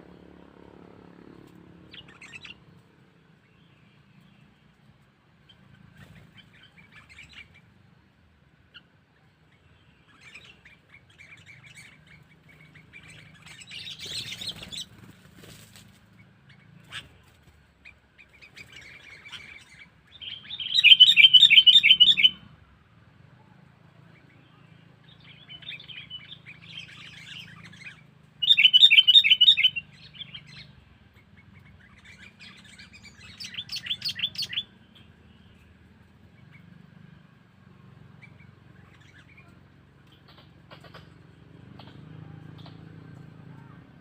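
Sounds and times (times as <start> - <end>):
bird chattering: 1.9 - 2.7, 10.1 - 15.1, 17.8 - 22.4, 25.1 - 35.6, 38.2 - 42.9.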